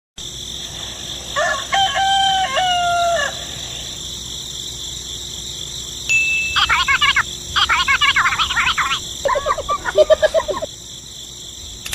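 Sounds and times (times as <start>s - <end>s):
steady high hiss: 0.2s - 11.8s
rooster crowing: 1.3s - 3.6s.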